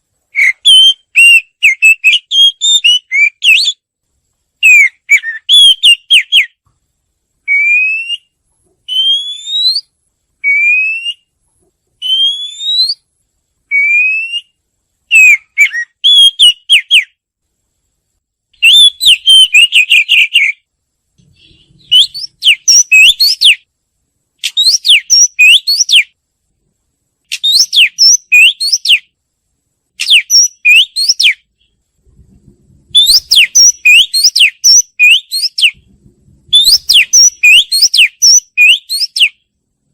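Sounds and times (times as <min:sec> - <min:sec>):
bird singing whistles and chirps: 0:00.3 - 0:03.8, 0:04.6 - 0:06.6, 0:07.5 - 0:11.3, 0:12.0 - 0:13.1, 0:13.7 - 0:17.2, 0:18.6 - 0:20.6, 0:21.2 - 0:23.7, 0:24.4 - 0:26.2, 0:27.3 - 0:29.1, 0:30.0 - 0:31.8, 0:32.9 - 0:35.9, 0:36.5 - 0:39.4.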